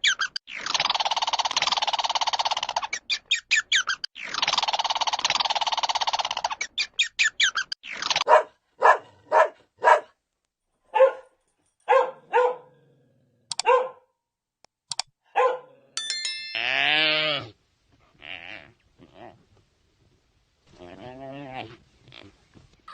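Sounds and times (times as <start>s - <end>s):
dog barking: 8.2s - 10.2s, 10.9s - 12.8s, 13.6s - 14.1s, 15.3s - 15.8s.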